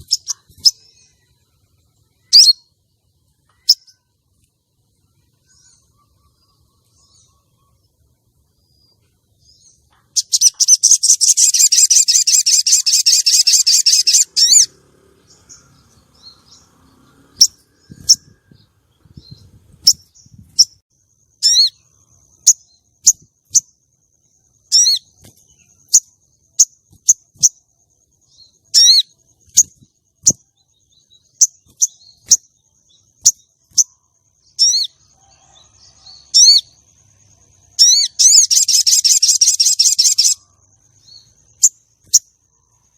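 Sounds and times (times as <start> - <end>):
bird trilling and chirping: 0.0 - 4.1, 5.1 - 42.5.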